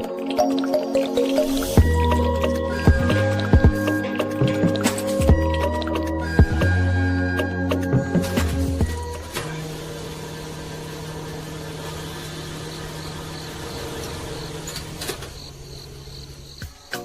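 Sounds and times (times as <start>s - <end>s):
small electric motor humming: 9.0s - 16.6s.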